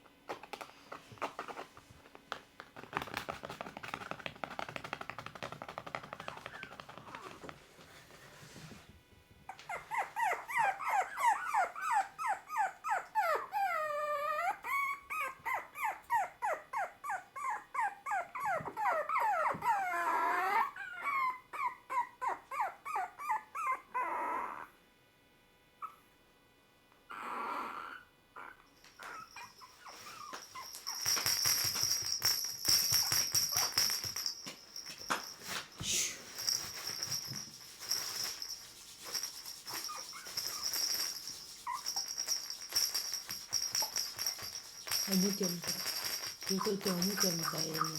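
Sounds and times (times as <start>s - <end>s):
puppy whimpering: 6.1s - 7.5s, 9.5s - 24.7s, 25.8s - 26.1s, 27.1s - 31.1s, 41.6s - 42.2s, 45.0s - 47.9s
hiss with high tone: 35.8s - 36.5s.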